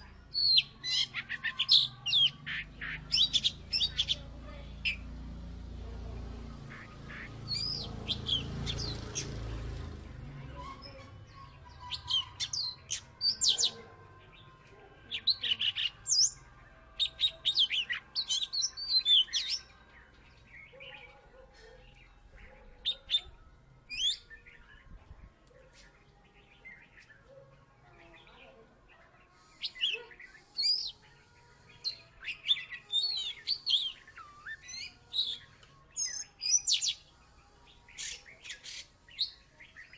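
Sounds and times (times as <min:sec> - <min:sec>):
bird singing high whistled notes: 0:07.5 - 0:09.4, 0:11.6 - 0:13.8, 0:15.1 - 0:19.8, 0:22.4 - 0:25.0, 0:29.4 - 0:39.9.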